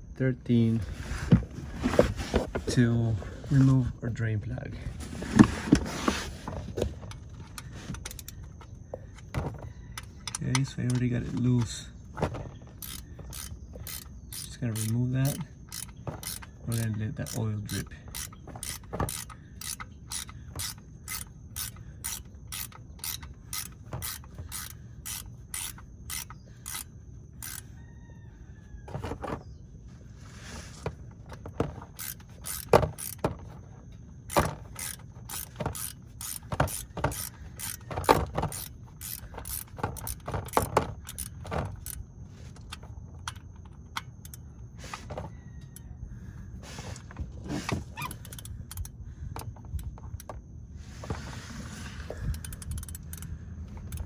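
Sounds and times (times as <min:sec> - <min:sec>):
ratchet wrench clicking: 0:07.0 - 0:09.4, 0:10.0 - 0:11.8, 0:12.7 - 0:27.7, 0:31.6 - 0:33.6, 0:34.2 - 0:44.5, 0:48.0 - 0:50.3, 0:52.0 - 0:54.0.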